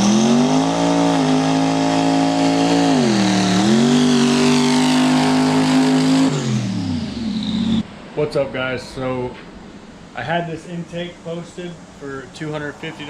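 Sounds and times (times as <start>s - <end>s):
car engine accelerating hard: 0.0s - 7.8s.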